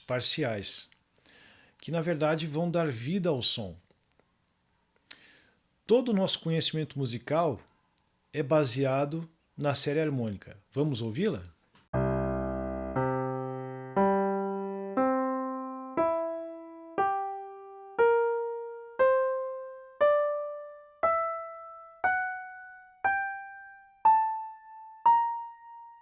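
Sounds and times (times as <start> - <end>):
piano notes climbing: 12.0 - 26.0.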